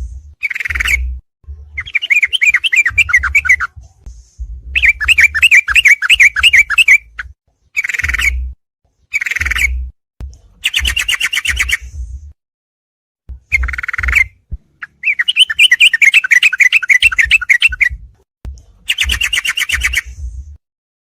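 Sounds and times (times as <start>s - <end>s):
bird chattering song: 0.4s - 1.1s, 1.8s - 3.7s, 4.8s - 8.4s, 9.1s - 9.8s, 10.6s - 11.9s, 13.5s - 18.0s, 18.9s - 20.2s.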